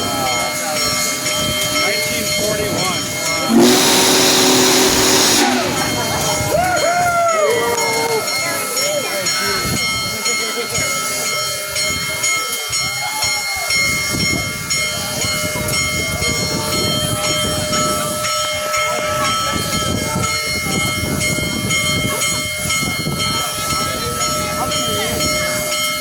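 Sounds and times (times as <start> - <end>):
high-pitched ringing tones: 3.5 - 6.2
steam train rumbling past: 3.5 - 6.6.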